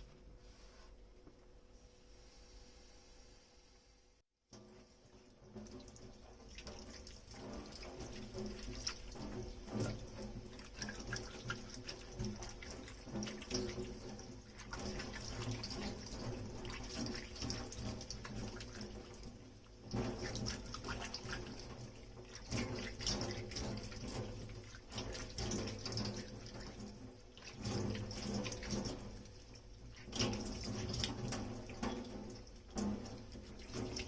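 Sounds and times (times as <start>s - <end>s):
water running from tap into sink: 5.0s - 34.0s.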